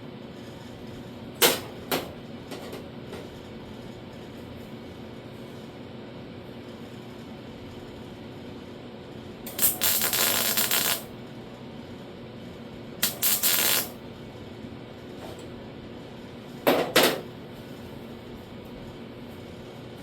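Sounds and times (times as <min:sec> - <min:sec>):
welding crackling hiss: 0:09.5 - 0:11.1, 0:13.0 - 0:14.0.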